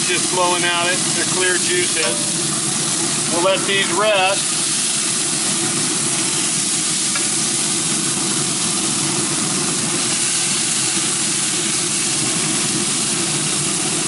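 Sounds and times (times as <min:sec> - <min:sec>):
chicken sizzling on a grill: 0:00.0 - 0:14.0.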